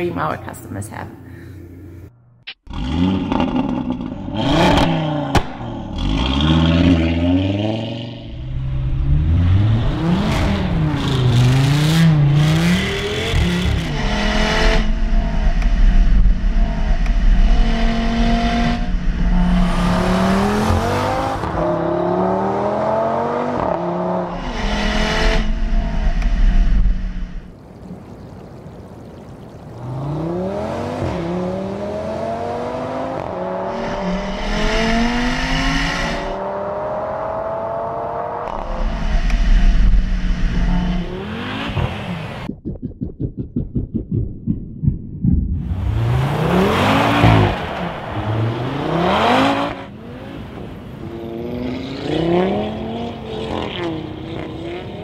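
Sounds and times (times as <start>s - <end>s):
car engine revving: 2.7s - 27.5s, 29.8s - 42.6s, 44.0s - 55.0s.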